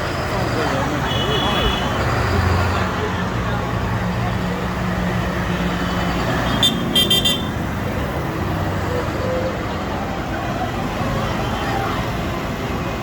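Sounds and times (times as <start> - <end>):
tractor engines running: 0.0 - 13.0
vehicle horn toots: 6.5 - 7.6.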